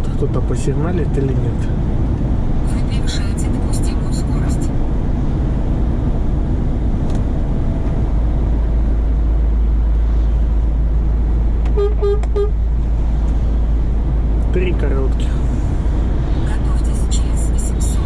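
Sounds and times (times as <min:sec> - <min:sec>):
truck cab drone: 0:00.0 - 0:18.0
vehicle horn toots: 0:11.7 - 0:12.6.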